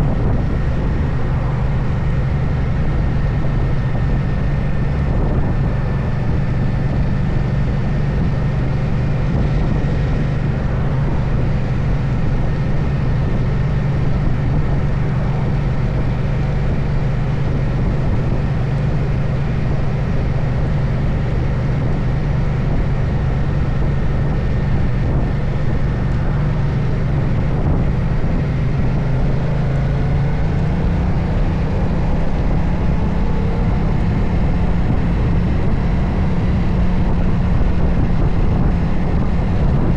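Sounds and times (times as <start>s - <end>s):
motorcycle engine cruising: 0.0s - 39.9s
road noise: 0.0s - 39.9s
wind noise: 0.0s - 39.9s.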